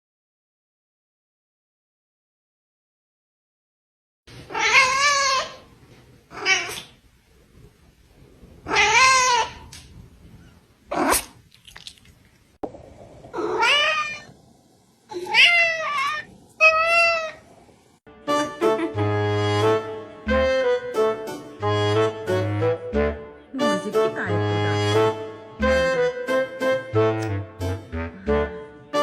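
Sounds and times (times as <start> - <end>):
cat meowing: 4.5 - 5.6, 6.3 - 6.9, 8.7 - 9.7, 13.4 - 14.3, 15.1 - 17.4.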